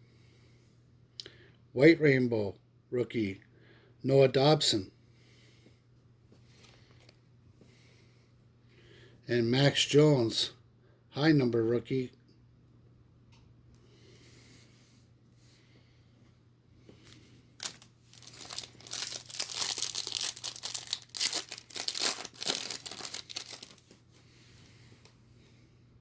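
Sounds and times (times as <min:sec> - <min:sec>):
wrapper tearing and crinkling: 0:17.6 - 0:24.0.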